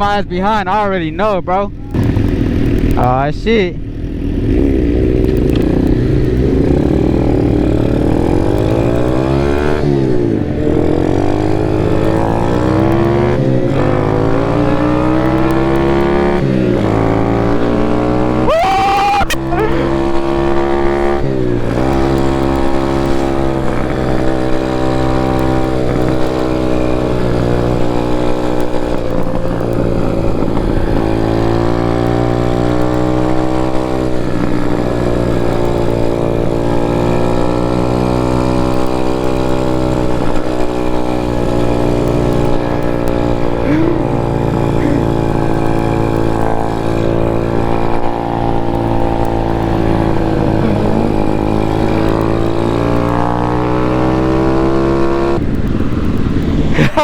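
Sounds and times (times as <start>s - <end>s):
pit bike engine revving: 1.7s - 57.0s.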